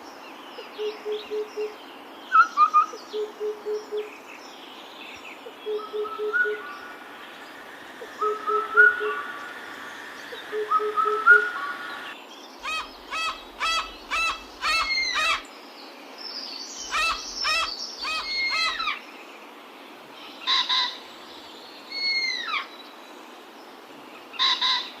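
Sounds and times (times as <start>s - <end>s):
bird calls: 5.5s - 15.5s, 16.7s - 19.0s.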